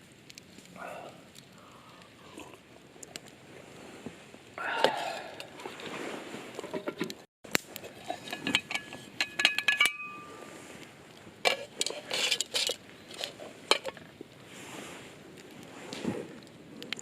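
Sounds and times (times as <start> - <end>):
metal cookware clinking: 7.9 - 10.3, 11.5 - 14.0.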